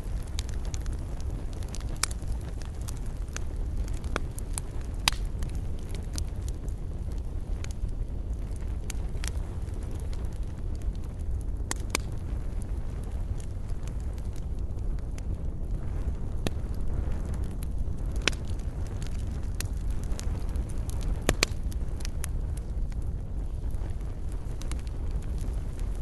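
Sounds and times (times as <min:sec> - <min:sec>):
campfire crackling: 0:00.0 - 0:26.0
low fire rumble: 0:00.0 - 0:26.0
sharp pops of burning wood: 0:00.0 - 0:26.0.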